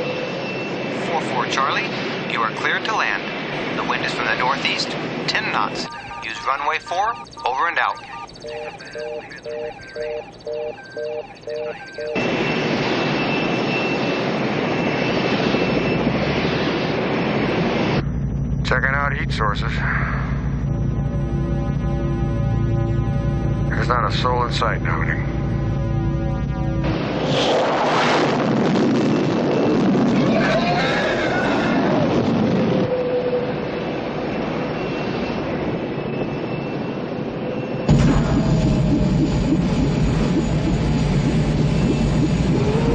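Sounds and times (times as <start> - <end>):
aircraft engine noise: 0.0 - 42.9
short electronic beeps: 5.4 - 14.1
thin high whine: 33.8 - 42.9.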